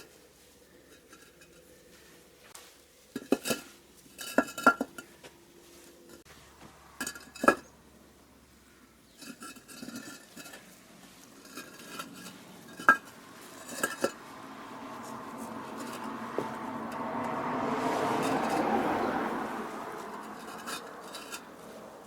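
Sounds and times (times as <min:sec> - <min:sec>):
scraping clatter: 0:03.1 - 0:06.3, 0:09.1 - 0:22.0
concrete blocks knocking: 0:04.2 - 0:05.1
steady rushing noise: 0:12.3 - 0:22.0.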